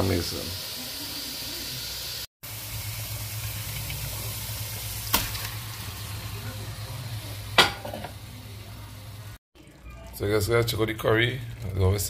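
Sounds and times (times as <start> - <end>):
paste sizzling in a pot: 0.0 - 9.4.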